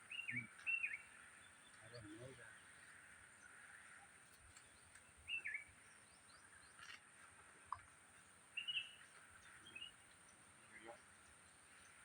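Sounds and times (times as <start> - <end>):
bird chirping: 0.0 - 3.6, 4.5 - 7.0, 8.5 - 12.0
faint outdoor ambience: 0.0 - 12.0.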